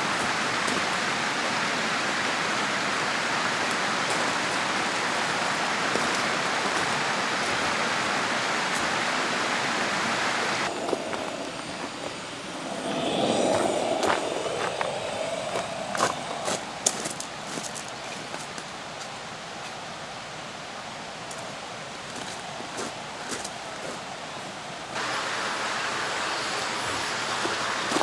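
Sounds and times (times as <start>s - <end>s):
mountain stream rushing: 0.0s - 28.0s
low hum: 10.6s - 17.5s.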